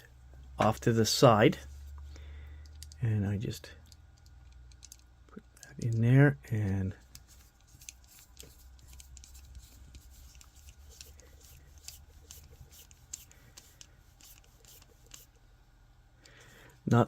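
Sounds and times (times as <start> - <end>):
small plastic parts handled: 3.8 - 15.3
small screw clicks and scratches: 3.8 - 15.4.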